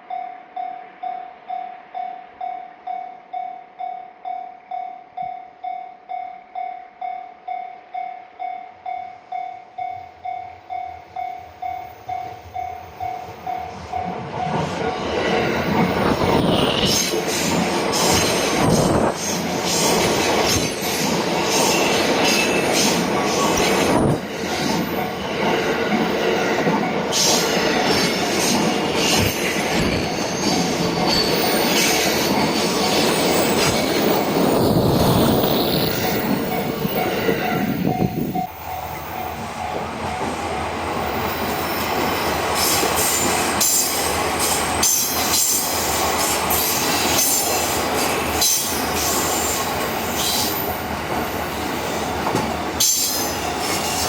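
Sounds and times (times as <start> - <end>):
level crossing warning bell: 0.0 - 14.6, 35.8 - 41.3
train wheels clattering and squealing: 13.0 - 40.5, 41.1 - 54.0.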